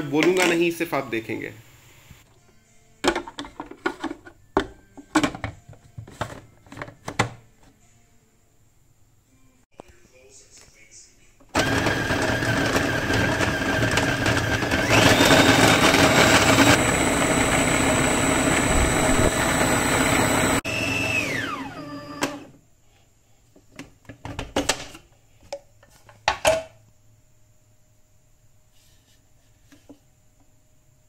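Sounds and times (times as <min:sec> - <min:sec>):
food processor motor grinding: 0:11.6 - 0:22.6.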